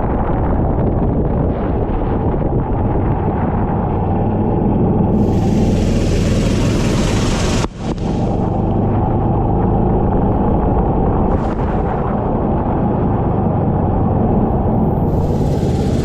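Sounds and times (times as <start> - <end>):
kart engine running: 5.1 - 10.3, 11.4 - 16.0.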